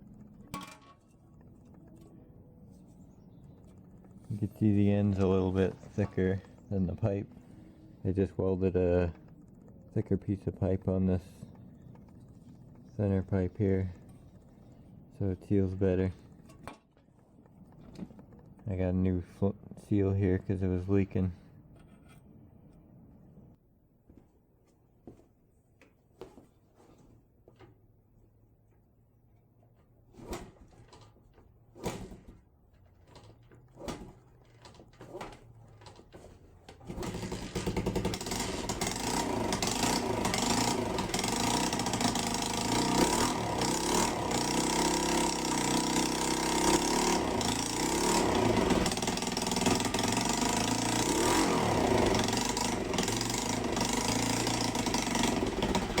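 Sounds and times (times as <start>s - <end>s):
motorcycle engine idling: 36.9s - 56.0s.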